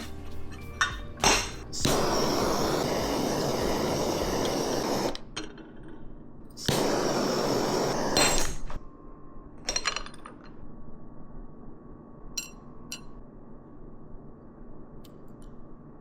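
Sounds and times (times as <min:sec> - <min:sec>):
loud hiss: 0:01.2 - 0:05.2, 0:06.6 - 0:08.8.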